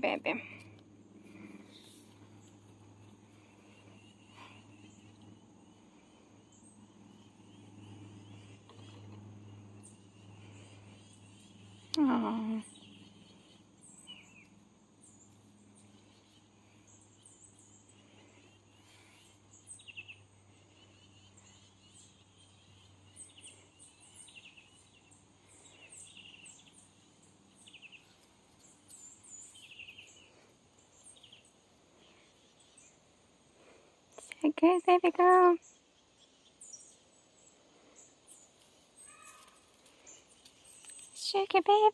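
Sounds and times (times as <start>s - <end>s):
low steady hum: 0.0s - 41.9s
small birds chirping: 0.0s - 41.9s.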